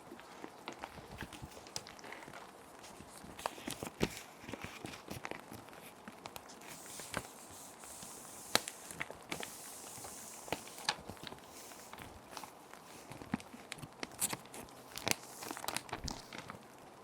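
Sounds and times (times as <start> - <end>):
plastic sheets crinkling: 0.0 - 17.0
rain: 7.5 - 17.0.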